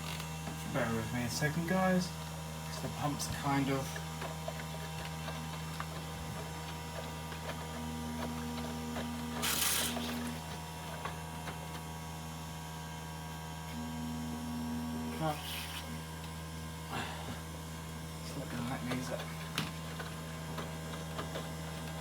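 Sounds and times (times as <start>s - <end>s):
drain pump humming: 0.0s - 22.0s.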